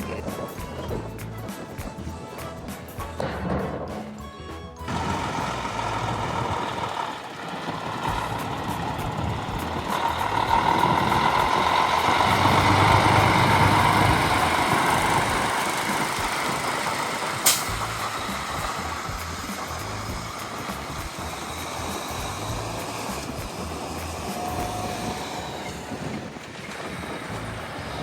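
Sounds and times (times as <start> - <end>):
truck engine running: 0.0 - 28.0
brief sharp sound: 11.2 - 25.6.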